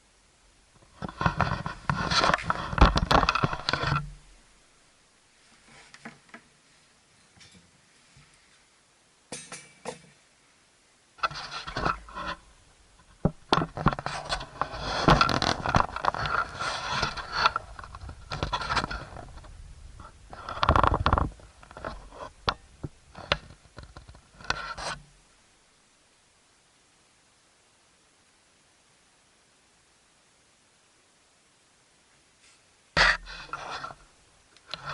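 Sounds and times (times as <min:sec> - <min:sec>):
scraping handling noises: 0:01.0 - 0:04.2, 0:13.1 - 0:25.1.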